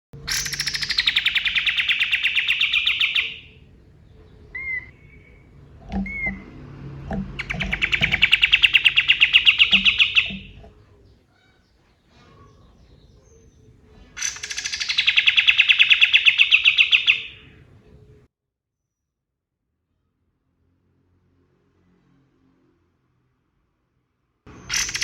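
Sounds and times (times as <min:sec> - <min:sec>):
bird rapid trill: 0:00.2 - 0:06.6, 0:07.2 - 0:10.8, 0:12.4 - 0:17.6, 0:24.5 - 0:25.0.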